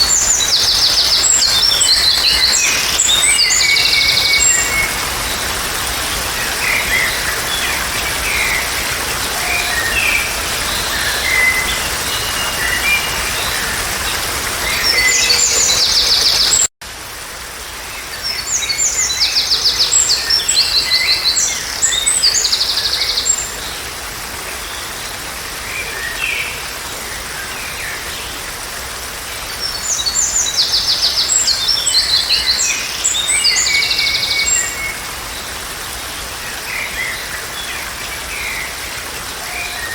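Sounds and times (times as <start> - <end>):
songbirds chirping and trilling: 0.0 - 16.7.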